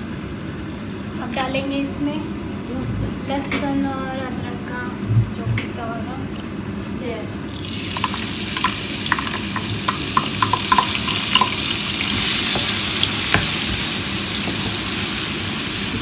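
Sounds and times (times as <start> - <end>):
garlic sizzling in hot oil: 7.5 - 16.0
utensil clicking against a pan: 8.0 - 11.6.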